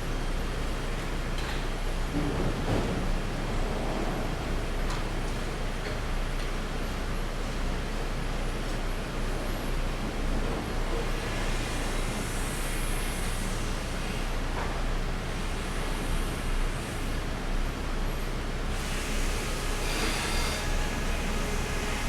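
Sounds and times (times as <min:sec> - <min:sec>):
sawmill machinery din: 0:18.8 - 0:22.0.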